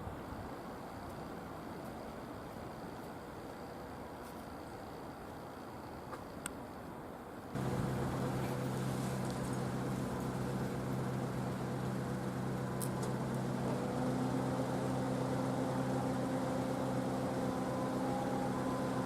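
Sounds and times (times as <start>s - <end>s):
held low tones: 7.6s - 19.0s
locomotive humming: 7.6s - 19.0s.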